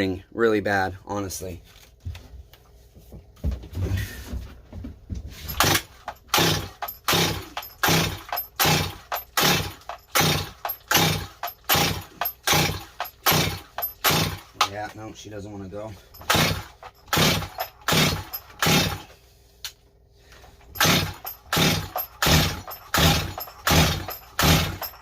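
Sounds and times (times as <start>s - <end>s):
chainsaw starter cranking: 5.5s - 14.9s, 16.1s - 19.1s, 20.7s - 25.0s.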